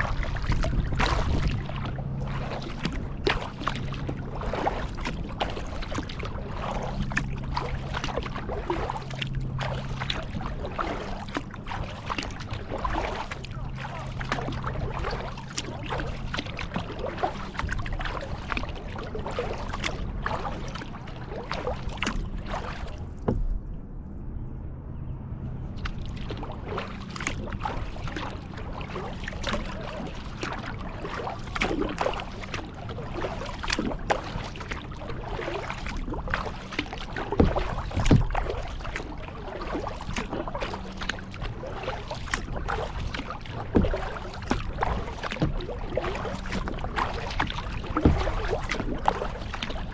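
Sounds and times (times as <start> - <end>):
paddle strokes splashing: 0.0 - 23.6, 25.6 - 49.9
water sloshing against hull: 0.0 - 49.9
knocks on kayak: 37.4 - 38.5, 46.5 - 49.6.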